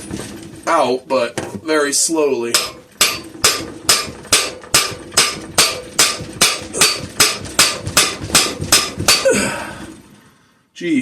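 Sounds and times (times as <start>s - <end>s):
hammer blows on steel: 2.5s - 9.5s.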